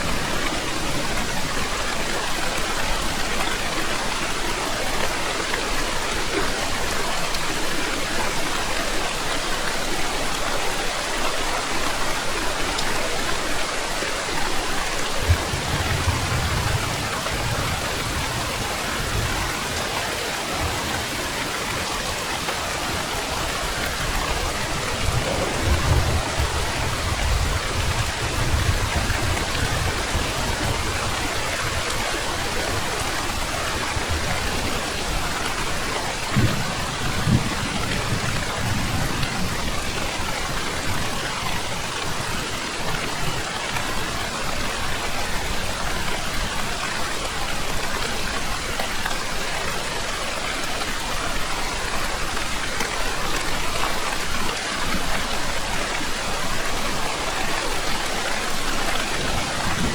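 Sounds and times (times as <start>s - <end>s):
heavy rain falling: 0.0s - 59.9s
thunder rumbling: 15.2s - 19.8s, 22.8s - 40.1s, 58.9s - 59.9s.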